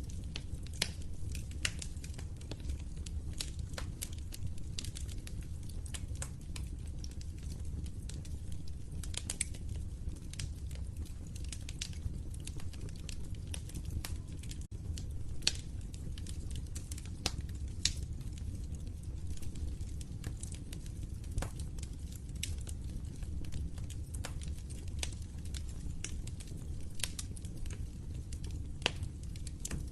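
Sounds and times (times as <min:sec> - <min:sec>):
low rumble of burning: 0:00.0 - 0:29.9
wood fire crackling and popping: 0:00.0 - 0:29.9.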